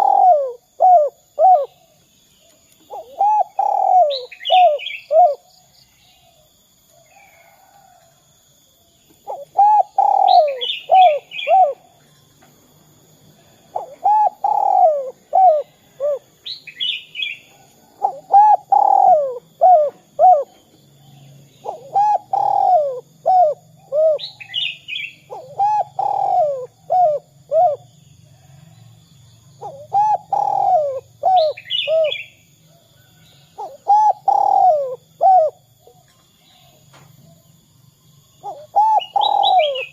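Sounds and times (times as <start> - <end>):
dove cooing: 0.0 - 2.0, 2.8 - 5.5, 9.2 - 12.0, 13.5 - 20.8, 21.5 - 28.6, 29.6 - 37.4, 38.4 - 39.9.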